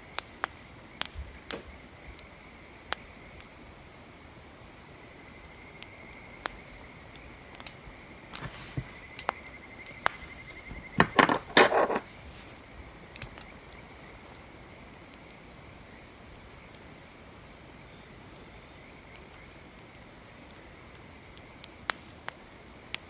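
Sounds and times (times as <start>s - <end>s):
clatter of small hard objects: 10.0s - 12.5s.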